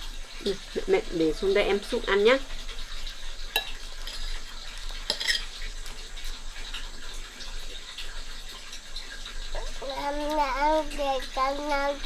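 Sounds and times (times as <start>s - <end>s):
spoon clinking against a bowl: 3.5s - 4.4s, 5.0s - 5.6s.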